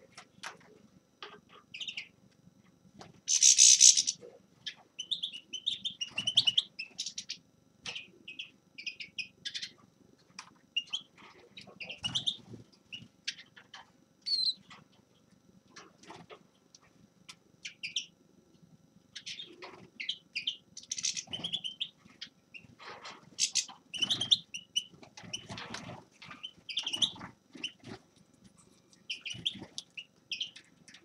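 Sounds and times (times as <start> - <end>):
finch twittering song: 3.3 - 9.8, 19.2 - 22.7, 23.4 - 25.5.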